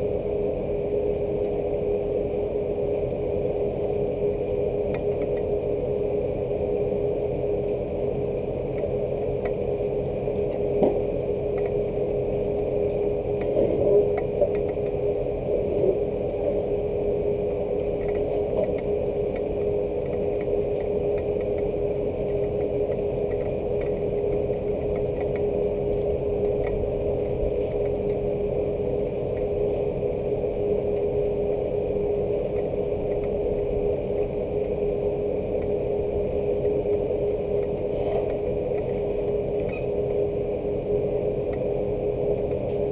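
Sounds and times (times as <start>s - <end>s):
rain drops ticking: 0.0s - 42.9s
steady machine hum: 0.0s - 42.9s
faint light ticks: 4.9s - 5.5s, 8.7s - 10.6s, 11.5s - 11.8s, 18.0s - 26.8s.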